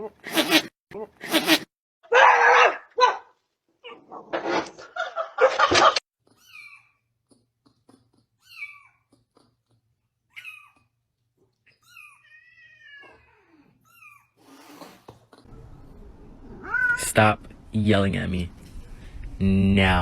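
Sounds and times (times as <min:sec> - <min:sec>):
cat meowing: 0:11.7 - 0:14.4, 0:16.5 - 0:17.0.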